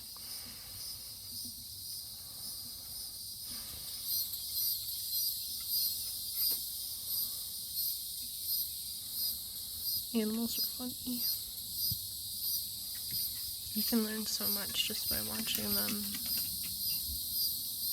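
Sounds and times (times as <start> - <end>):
insects chirring: 0.0 - 17.9
loud pulsing insect chirp: 0.0 - 17.9.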